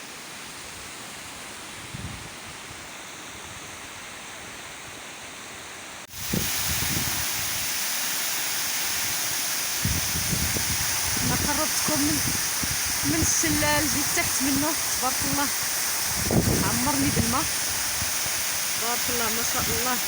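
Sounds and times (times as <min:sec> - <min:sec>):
waterfall rushing: 0:06.1 - 0:20.0.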